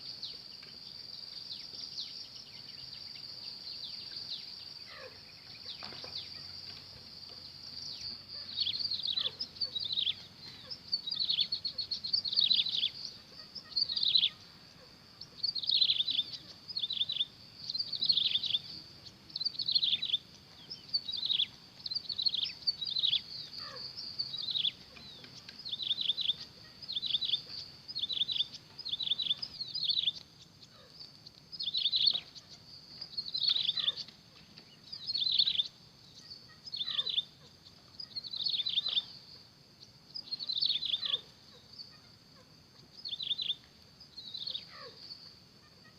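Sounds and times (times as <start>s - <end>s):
quail calling: 22.3s - 27.5s, 33.4s - 34.1s.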